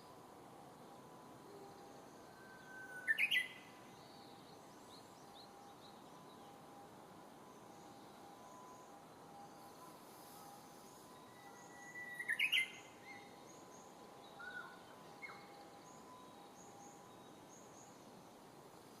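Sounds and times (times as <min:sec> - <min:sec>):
bird singing whistle and flourish: 0:02.4 - 0:03.7, 0:11.2 - 0:13.7.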